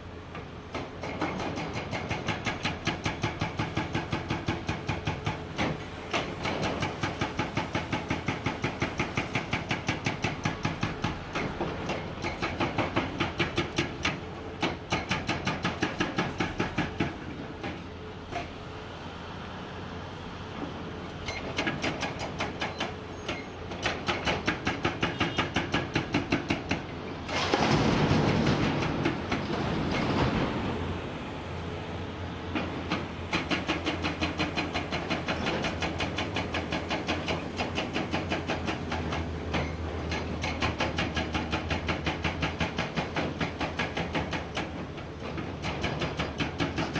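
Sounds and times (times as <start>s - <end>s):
hydraulic breaker hammer pounding rock: 0.7s - 17.8s, 21.3s - 30.6s, 32.6s - 46.9s
excavator engine hum: 25.9s - 46.9s.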